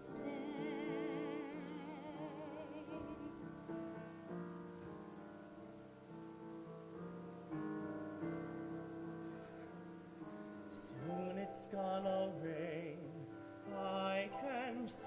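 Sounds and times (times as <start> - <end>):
person singing ballad: 0.0 - 4.0, 10.5 - 15.0
slow piano chords: 0.0 - 15.0.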